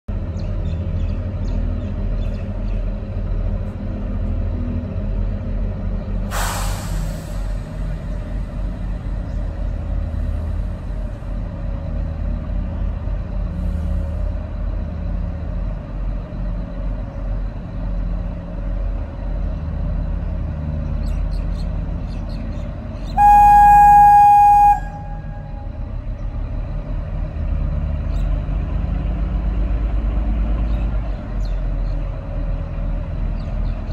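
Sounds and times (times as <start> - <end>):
train engine rumbling: 0.1 - 33.9
short hiss: 6.3 - 7.6
train horn blast: 23.1 - 25.9.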